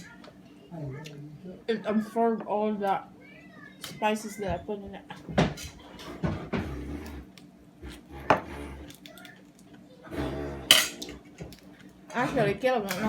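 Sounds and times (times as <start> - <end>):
tableware knocks and clinks: 10.7 - 11.1.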